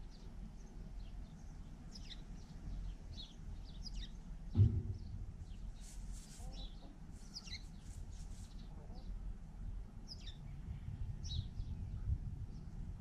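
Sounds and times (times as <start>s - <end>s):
small birds chirping: 0.0s - 4.3s, 5.0s - 9.2s, 10.0s - 10.6s, 11.2s - 12.7s
low background hum: 0.0s - 13.0s
low thump: 4.5s - 5.6s.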